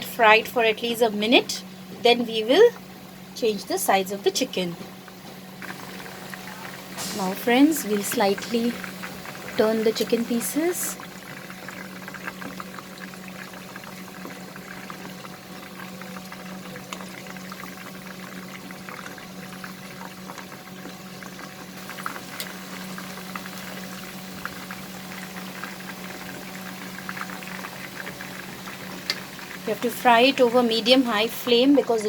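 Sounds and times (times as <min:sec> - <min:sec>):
chicken deep-frying in oil: 0:00.0 - 0:32.0.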